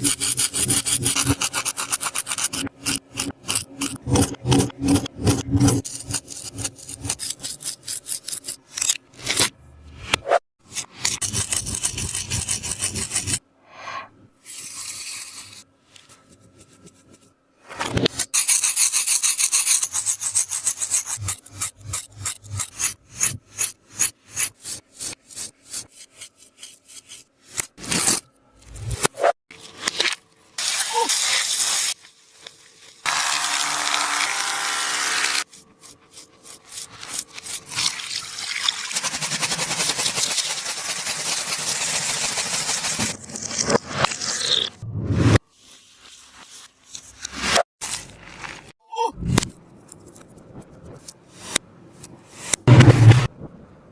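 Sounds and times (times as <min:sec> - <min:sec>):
hands scratching squishy toys: 0:35.4 - 0:38.1, 0:38.8 - 0:43.1.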